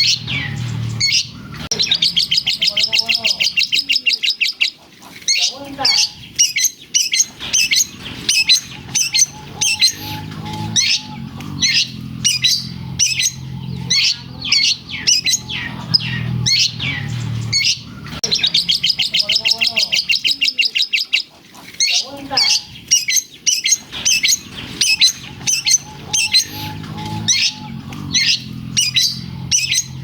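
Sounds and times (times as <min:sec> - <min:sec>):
rapid even bird trill: 0:00.0 - 0:30.0
shrike singing varied high chirps: 0:05.3 - 0:21.1, 0:21.8 - 0:30.0.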